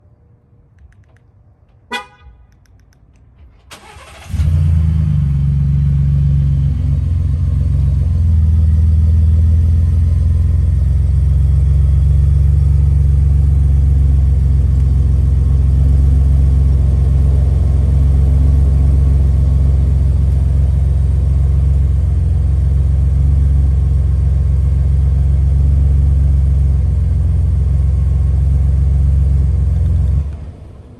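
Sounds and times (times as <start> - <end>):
car horn chirp: 1.8 - 2.6
truck engine starting and idling: 2.6 - 30.9.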